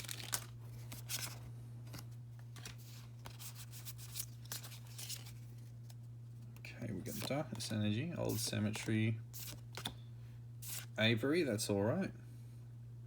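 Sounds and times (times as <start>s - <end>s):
trading cards rustling and tapping: 0.0s - 6.0s, 7.0s - 10.0s
steady low hum: 0.0s - 13.0s.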